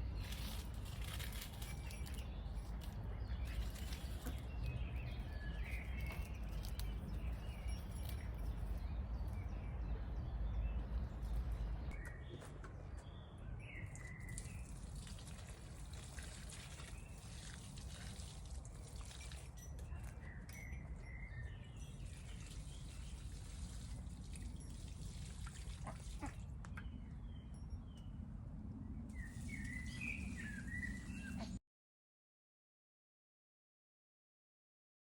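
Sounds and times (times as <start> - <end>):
small birds chirping: 0.0 - 18.1, 19.3 - 24.9, 28.9 - 31.6.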